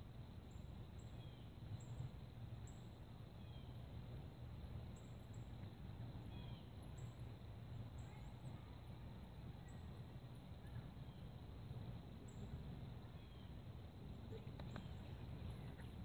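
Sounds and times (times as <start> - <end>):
steady low rumble: 0.0 - 16.0
small birds chirping: 0.3 - 16.0.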